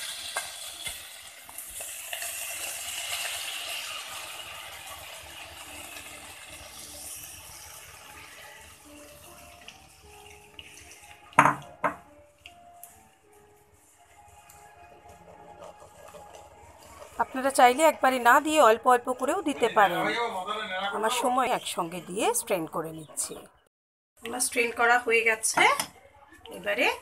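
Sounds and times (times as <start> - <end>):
tomato puree sizzling in pan: 0.0 - 11.8, 13.8 - 20.2.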